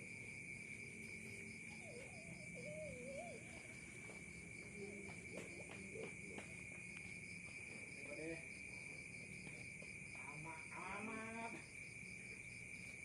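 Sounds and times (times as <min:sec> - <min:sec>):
high-pitched insect trilling: 0:00.2 - 0:04.9.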